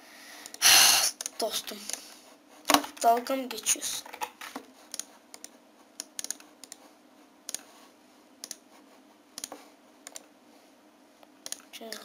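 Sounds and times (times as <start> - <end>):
computer mouse clicking: 4.9 - 6.8, 8.4 - 8.6, 9.4 - 10.3, 11.4 - 11.7.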